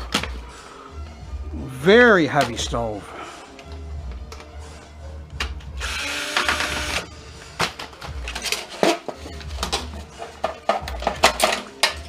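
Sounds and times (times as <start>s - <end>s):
sheet metal clattering and scraping: 7.7s - 12.0s.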